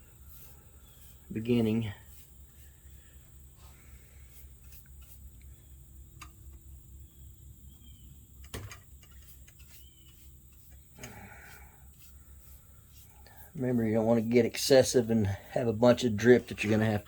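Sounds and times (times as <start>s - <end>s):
soft brush strokes: 0.0s - 5.6s, 9.1s - 17.0s.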